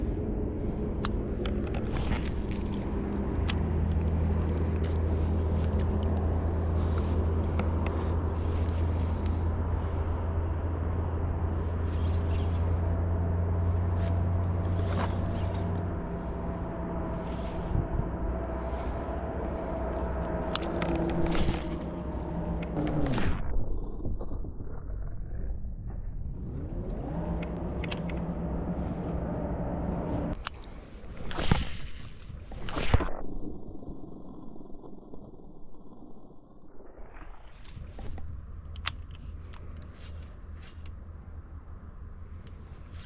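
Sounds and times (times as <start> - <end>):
low motor hum: 0.0 - 43.0
sharp clicks: 1.0 - 6.4.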